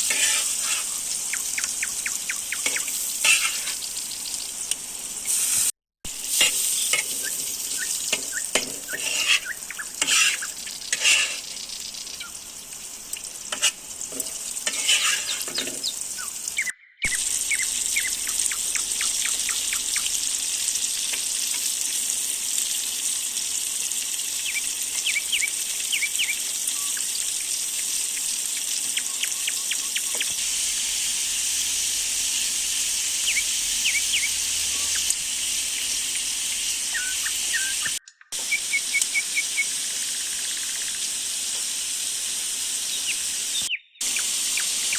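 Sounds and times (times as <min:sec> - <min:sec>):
utensil stirring and knocking in pan: 0:00.0 - 0:03.9, 0:06.1 - 0:11.6, 0:13.5 - 0:15.9
meat and vegetables sizzling in pan: 0:00.0 - 0:44.9.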